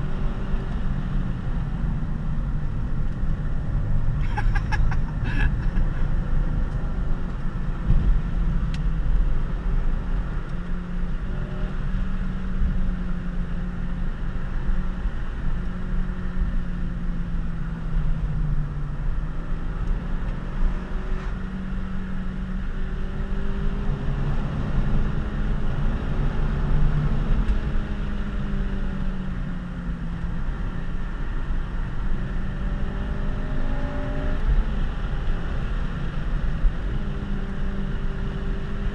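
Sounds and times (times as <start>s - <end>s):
car engine under part throttle: 0.0s - 38.9s
tyre and road noise: 0.0s - 38.9s.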